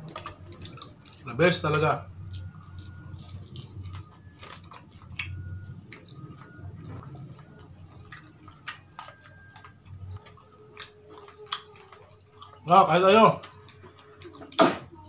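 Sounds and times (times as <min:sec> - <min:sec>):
person chewing with wet smacks: 0:00.0 - 0:15.0.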